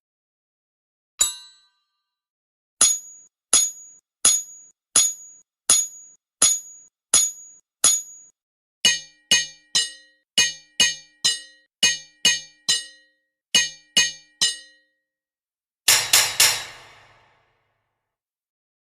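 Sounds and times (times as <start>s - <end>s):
hammer striking metal on anvil: 1.2s - 1.8s, 2.8s - 8.3s, 8.9s - 14.9s, 15.9s - 17.5s.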